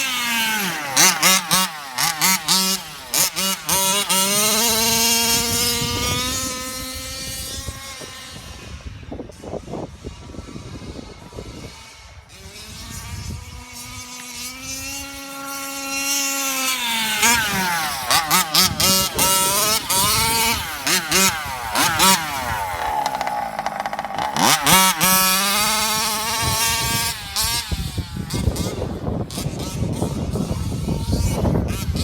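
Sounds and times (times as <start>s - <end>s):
rc car engine revving: 0.0s - 32.0s.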